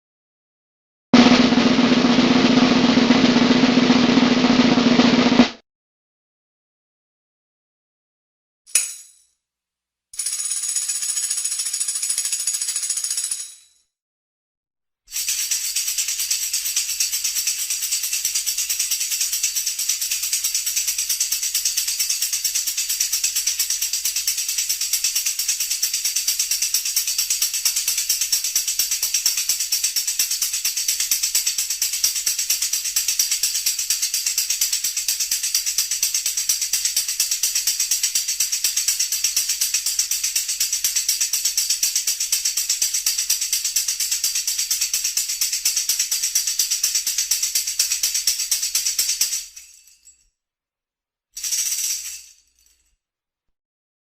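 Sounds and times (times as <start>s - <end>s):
dense high-pitched rattle: 1.2s - 5.6s.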